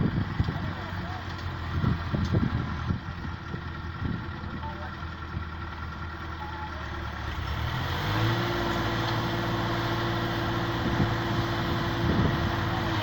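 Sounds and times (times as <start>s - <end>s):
diesel engine revving: 0.0s - 13.0s.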